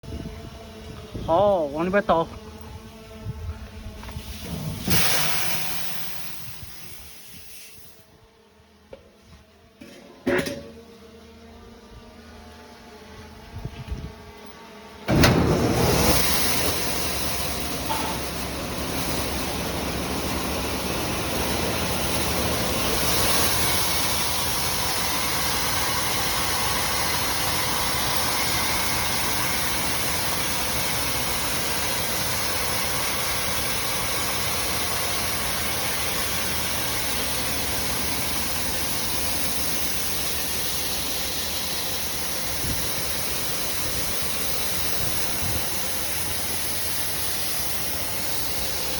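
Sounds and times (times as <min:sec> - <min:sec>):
mechanical hum: 0:00.0 - 0:48.9
machinery rushing noise: 0:15.1 - 0:48.9.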